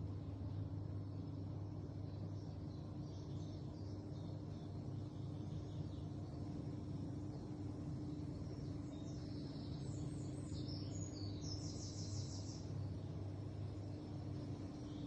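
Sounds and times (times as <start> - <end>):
small birds chirping: 0.0 - 15.0
steady low hum: 0.0 - 15.0
bird trill: 8.5 - 12.8.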